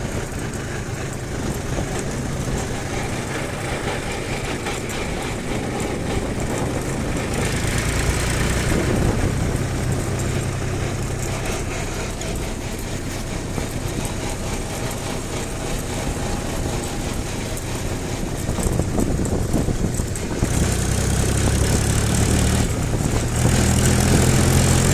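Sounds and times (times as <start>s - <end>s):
tractor engine running: 0.0s - 24.9s.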